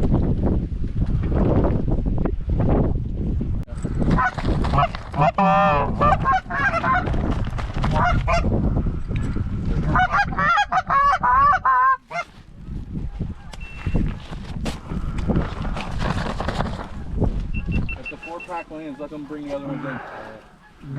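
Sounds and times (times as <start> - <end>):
wind rumbling on microphone: 0.0 - 18.6
goose honking: 4.2 - 7.0, 9.9 - 12.3, 18.0 - 20.9.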